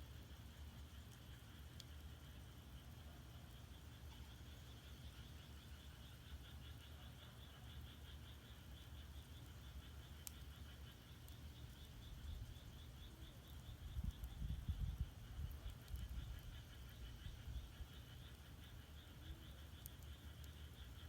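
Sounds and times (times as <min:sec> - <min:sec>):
fire crackle: 0:00.1 - 0:06.6, 0:08.1 - 0:21.0
frogs calling in chorus: 0:00.3 - 0:21.0
firewood burning rumble: 0:08.7 - 0:21.0.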